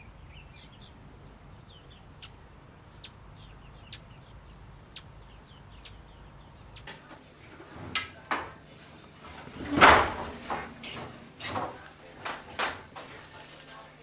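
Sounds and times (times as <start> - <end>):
small birds chirping: 0.0 - 12.2
low background hum: 0.0 - 14.0
sharp clicks: 4.9 - 5.2, 6.7 - 7.0.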